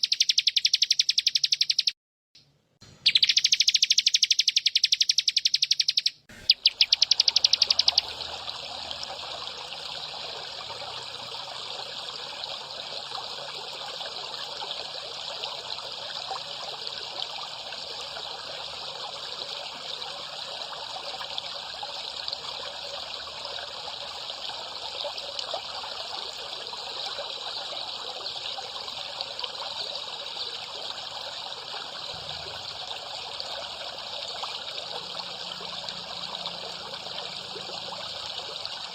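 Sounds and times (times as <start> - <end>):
rapid buzzing bird trill: 0.0 - 2.0, 3.0 - 8.2
water trickling: 3.1 - 38.9.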